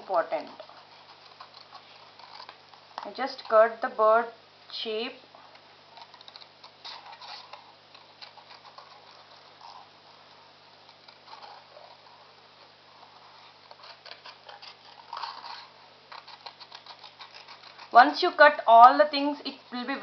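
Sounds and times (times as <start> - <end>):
paper crackling: 0.0 - 3.6, 5.5 - 20.0
scissors snipping paper: 13.1 - 18.3.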